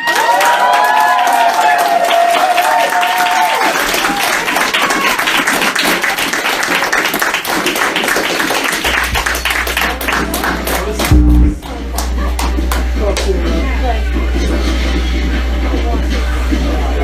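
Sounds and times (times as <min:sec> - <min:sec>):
dense crackling noise: 0:11.0 - 0:11.8
low steady hum: 0:11.0 - 0:13.1
loud low buzz: 0:11.0 - 0:13.8.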